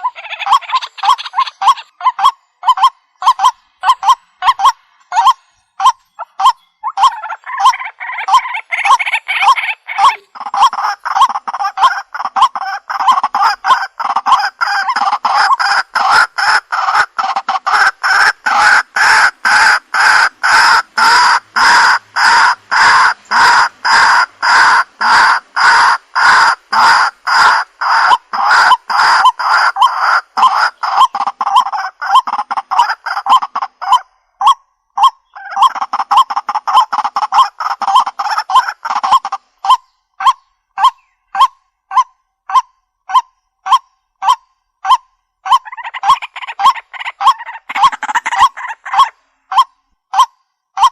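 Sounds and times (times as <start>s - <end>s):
waterhen calling harsh notes: 0.0s - 50.9s.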